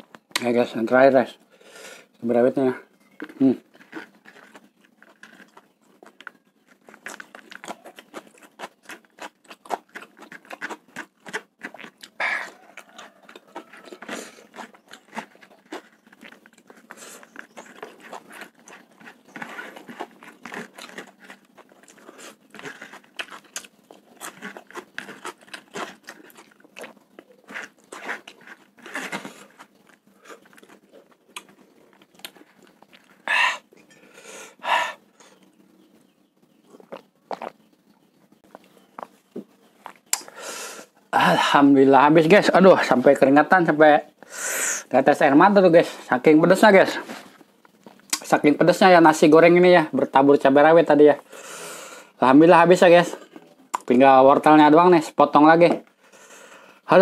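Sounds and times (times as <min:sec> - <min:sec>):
loud breaths: 0:01.5 - 0:02.1, 0:33.2 - 0:35.4, 0:51.2 - 0:52.2, 0:55.9 - 0:56.9
chewing crunches: 0:03.0 - 0:40.4, 0:44.9 - 0:49.8.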